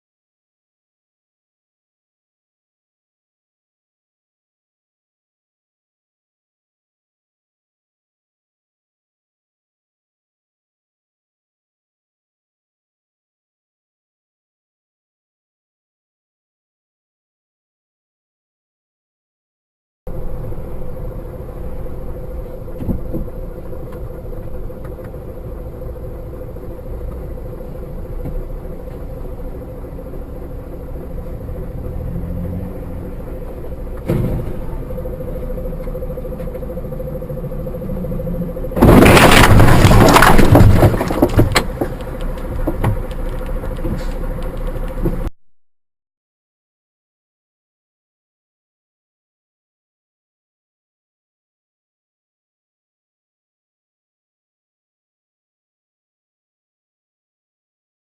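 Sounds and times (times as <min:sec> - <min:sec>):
car road and engine noise: 0:20.1 - 0:45.3
faint constant hum: 0:20.1 - 0:45.3
loud car crash: 0:33.9 - 0:35.2, 0:38.6 - 0:44.2.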